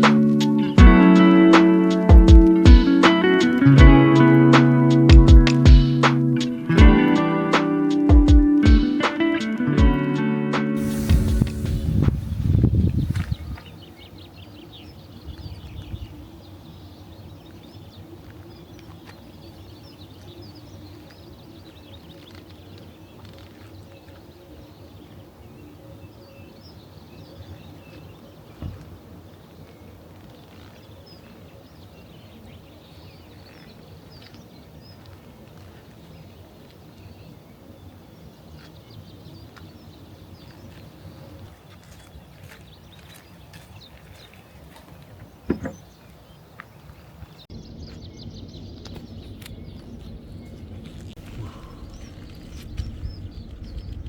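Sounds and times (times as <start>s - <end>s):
birds chirping: 10.8s - 54.0s
knock: 45.5s - 45.8s.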